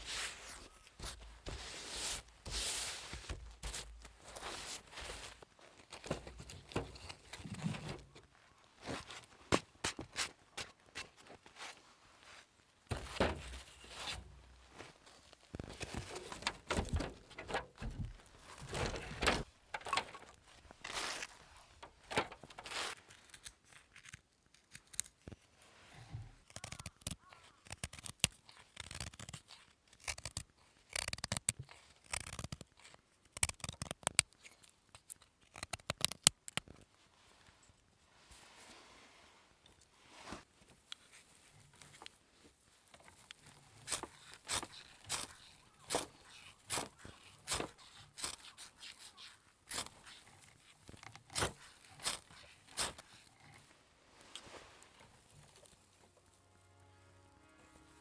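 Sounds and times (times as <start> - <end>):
shovel scraping snow and ash: 1.5 - 3.2, 20.8 - 23.0.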